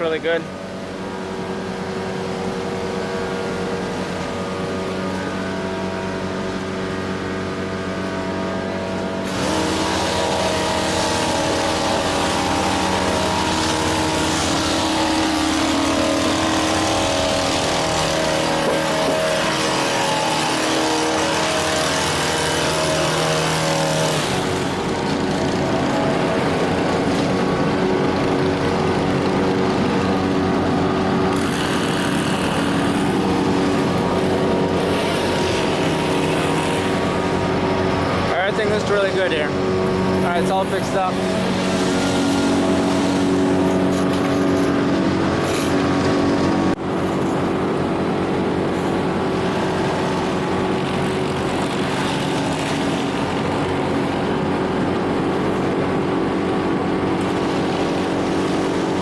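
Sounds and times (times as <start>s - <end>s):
engine running: 0.0s - 59.0s
loud rushing noise: 0.0s - 59.0s.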